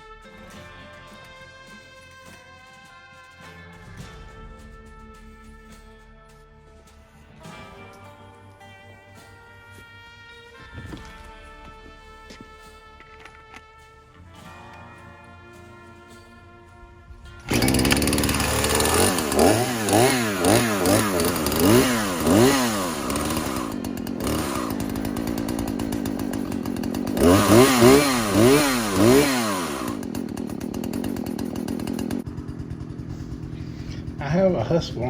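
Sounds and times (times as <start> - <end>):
chainsaw revving: 17.3 - 35.0.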